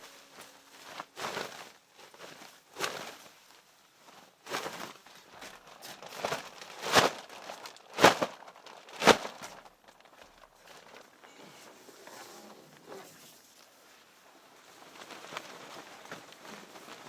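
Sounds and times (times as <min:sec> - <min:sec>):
material crinkling and rustling: 0:00.0 - 0:17.0.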